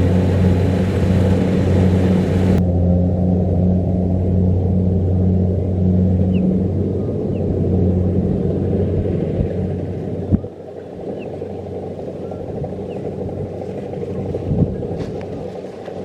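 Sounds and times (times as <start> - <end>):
combine harvester diesel engine: 0.0 - 16.0.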